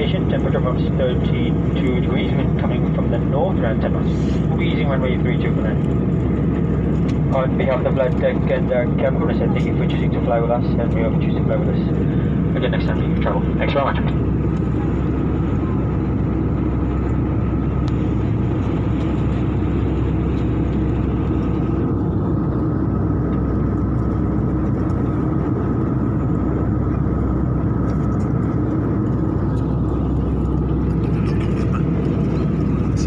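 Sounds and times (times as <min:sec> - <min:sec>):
airliner cabin drone: 0:00.0 - 0:33.0.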